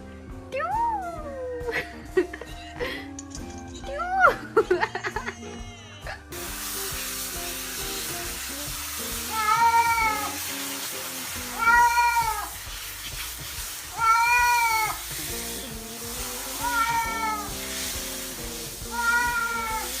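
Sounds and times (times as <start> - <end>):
background music: 0.0 - 20.0
cat meowing: 9.3 - 10.4, 11.5 - 12.6, 13.9 - 15.0, 16.6 - 17.6, 18.8 - 20.0.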